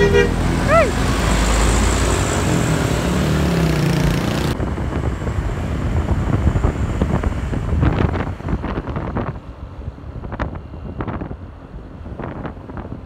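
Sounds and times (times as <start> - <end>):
truck engine driving by: 0.0 - 12.7
wind buffeting microphone: 3.9 - 13.0.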